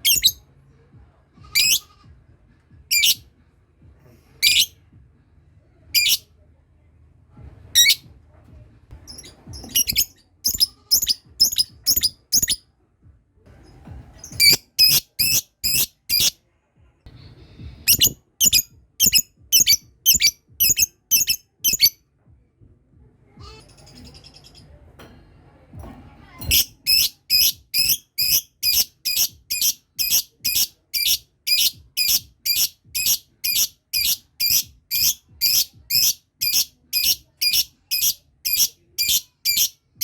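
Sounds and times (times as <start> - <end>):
lovebirds high-pitched calls: 0.0 - 0.4, 1.6 - 1.9, 2.9 - 3.2, 4.4 - 4.7, 6.0 - 6.2, 9.1 - 12.6, 14.4 - 16.3, 17.9 - 21.9, 26.5 - 39.8.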